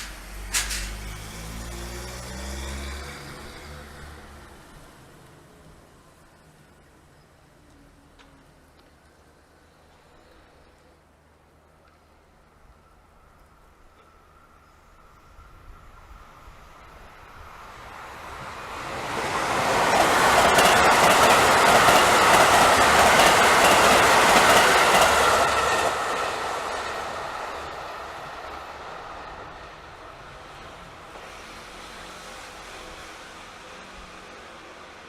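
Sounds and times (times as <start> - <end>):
wheels clicking over rail joints: 0.0 - 1.1, 19.8 - 26.0
train rumbling past: 0.0 - 35.0.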